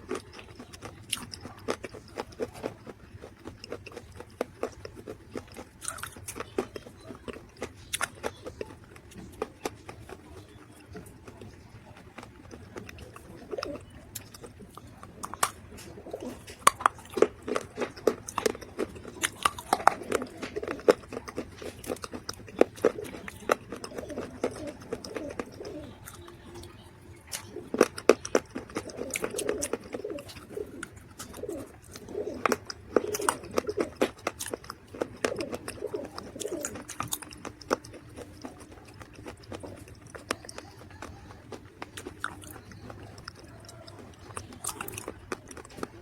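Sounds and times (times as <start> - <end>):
crunching and chewing: 0.0 - 46.0
low wavering coos: 22.8 - 27.8, 28.8 - 34.0.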